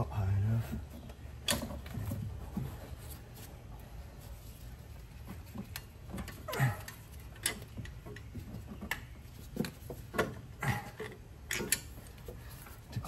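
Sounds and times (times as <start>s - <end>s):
metallic clicks and knocks: 5.2s - 12.6s.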